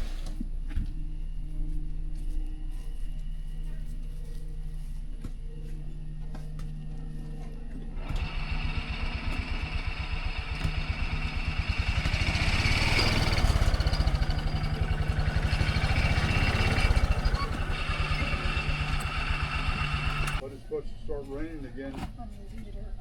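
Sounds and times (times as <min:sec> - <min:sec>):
vehicle engine revving: 0:08.0 - 0:20.4.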